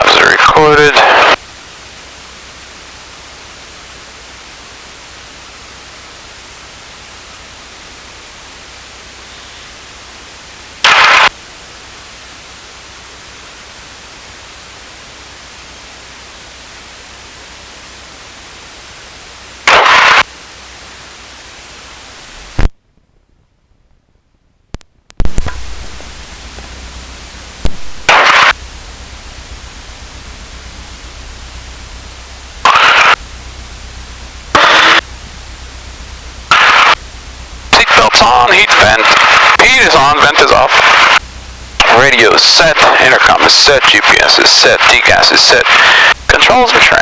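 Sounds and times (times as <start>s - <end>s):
loud noise bursts: 0.0s - 1.5s, 10.8s - 11.4s, 19.5s - 20.3s, 25.2s - 47.0s
intercom static hiss: 0.0s - 22.8s, 24.8s - 47.0s.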